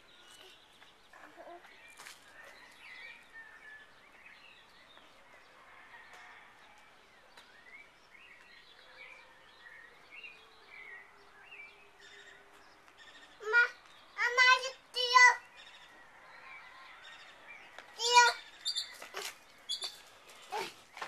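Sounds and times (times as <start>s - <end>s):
faint bird chirps: 18.1s - 20.0s.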